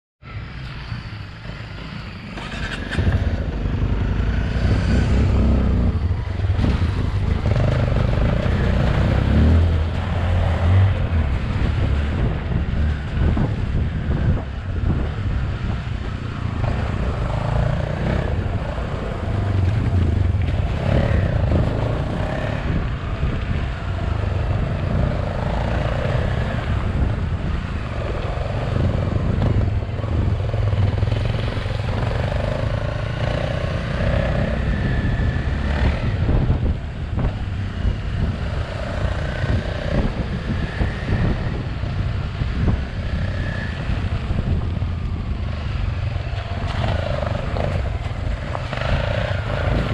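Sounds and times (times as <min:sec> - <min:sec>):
wind and road noise: 0:00.2 - 0:49.9
motorbike engine: 0:01.4 - 0:15.0.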